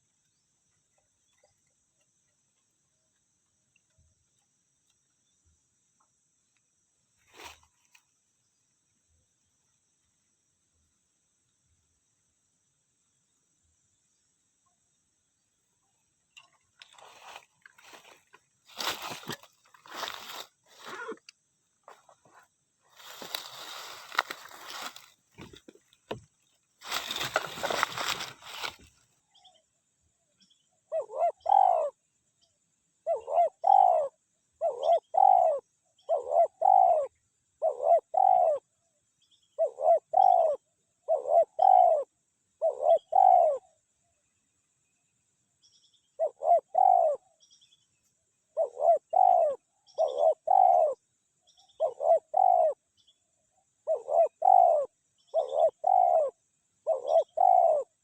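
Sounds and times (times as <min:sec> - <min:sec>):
brief rustling: 0:26.8 - 0:29.0
dove cooing: 0:30.9 - 0:32.0, 0:33.0 - 0:38.6, 0:39.6 - 0:43.6, 0:46.2 - 0:47.2, 0:48.6 - 0:51.0, 0:51.7 - 0:52.8, 0:53.8 - 0:58.0.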